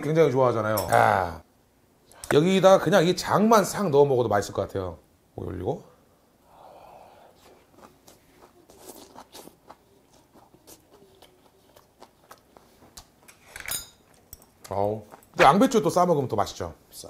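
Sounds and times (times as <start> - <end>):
person chewing food: 7.3 - 15.4.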